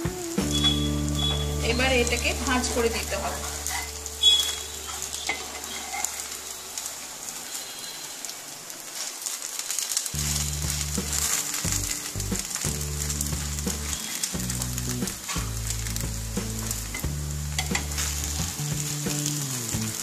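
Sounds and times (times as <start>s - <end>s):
low background music: 0.0s - 5.9s, 10.2s - 20.0s
crepe sizzling in a pan: 0.0s - 20.0s
metal spatula folding crepe: 3.4s - 6.6s.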